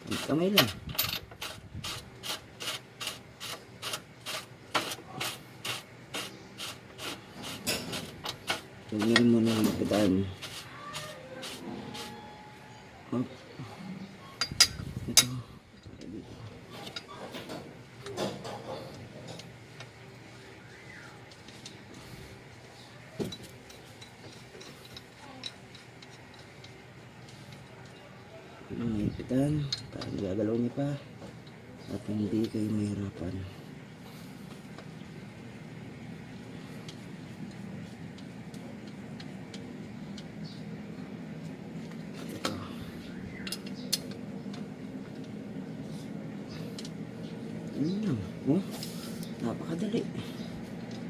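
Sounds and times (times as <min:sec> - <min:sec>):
hand tool rasping strokes: 0:00.0 - 0:00.8, 0:01.4 - 0:12.4
faint hum: 0:03.7 - 0:51.0.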